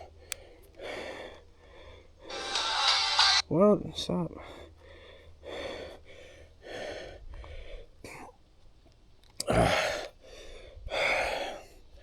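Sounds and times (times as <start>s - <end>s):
man breathing hard: 0.0s - 2.3s, 4.4s - 8.3s, 9.4s - 12.0s.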